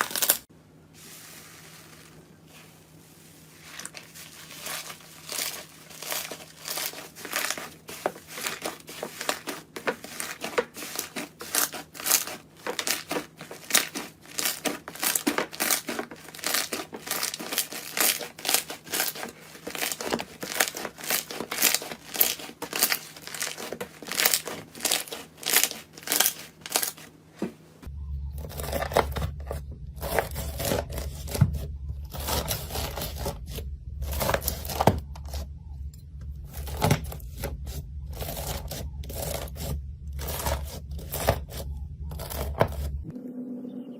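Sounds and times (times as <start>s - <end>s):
crunchy material being crushed: 0.0s - 27.2s, 28.2s - 35.6s, 36.4s - 43.1s
low steady hum: 0.0s - 43.9s.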